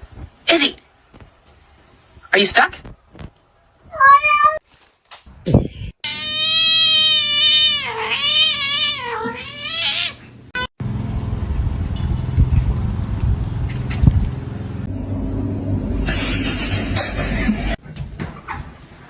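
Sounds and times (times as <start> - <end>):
cat yowling: 6.0 - 10.7
low rumbling noise: 10.8 - 17.8.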